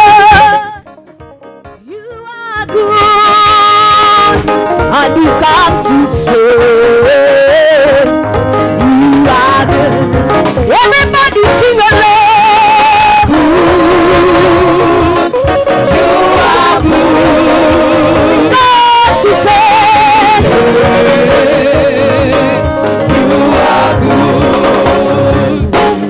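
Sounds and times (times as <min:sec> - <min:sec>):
singers with strong vibrato: 0:00.0 - 0:00.8, 0:01.9 - 0:26.0
full band accompaniment: 0:00.0 - 0:26.0.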